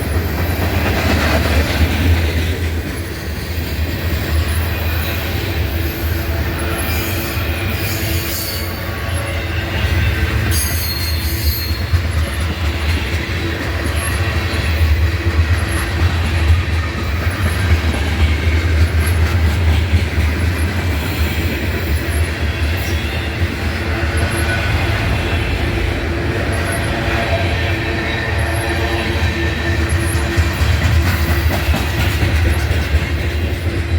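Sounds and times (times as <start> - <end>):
train wheels rumbling on rails: 0.0 - 33.9
high-pitched wheel squeals: 3.2 - 12.6.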